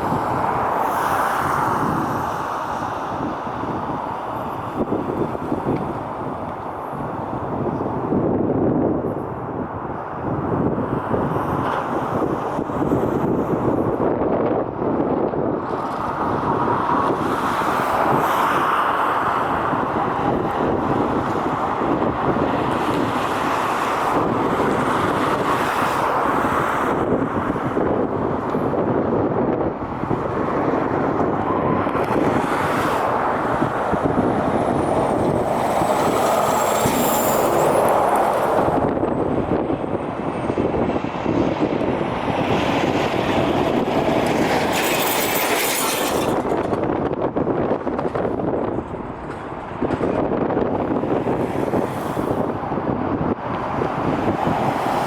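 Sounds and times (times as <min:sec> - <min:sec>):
jet engine roar: 0:29.8 - 0:46.8.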